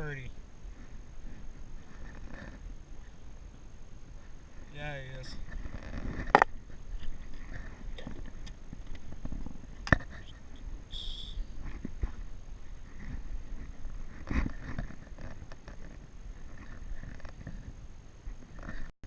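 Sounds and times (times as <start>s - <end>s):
low steady rumble: 0.0s - 18.9s
short high chirp: 10.9s - 11.5s.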